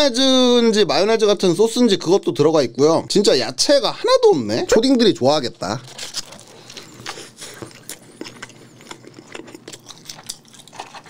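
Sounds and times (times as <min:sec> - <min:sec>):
person chewing a burger: 0:05.7 - 0:11.0.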